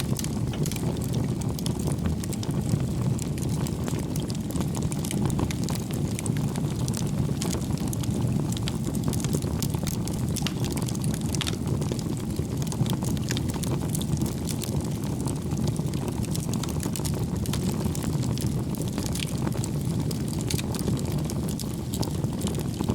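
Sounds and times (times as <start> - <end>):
burning logs crackling and popping: 0.0 - 22.9
low rumble of flames: 0.0 - 22.9.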